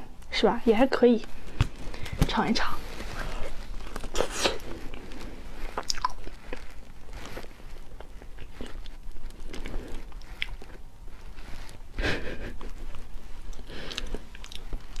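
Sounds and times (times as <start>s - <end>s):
lip smacking: 3.2s - 6.6s, 12.6s - 15.0s
person chewing: 3.2s - 15.0s.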